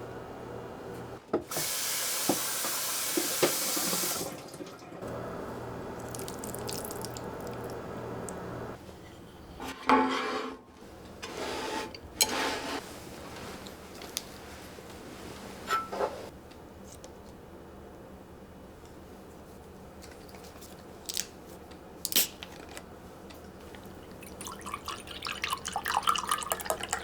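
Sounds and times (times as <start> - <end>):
tap water running into sink: 1.5 - 5.1, 6.0 - 7.8, 24.2 - 27.0.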